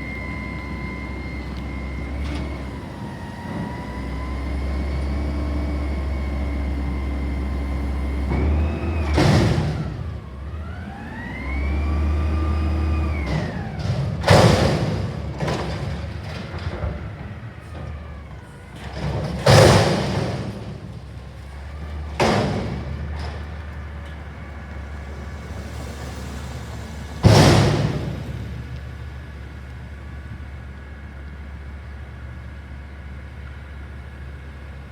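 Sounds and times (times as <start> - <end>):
garbage truck engine and hydraulics whine: 0.0 - 34.9
steel container metallic bangs: 27.2 - 28.6.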